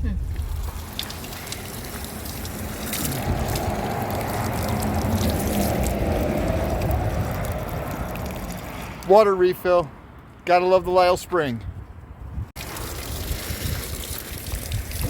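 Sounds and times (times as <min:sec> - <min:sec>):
low rumble: 0:00.0 - 0:09.0
water pouring from a pipe: 0:00.2 - 0:09.2, 0:12.6 - 0:15.0.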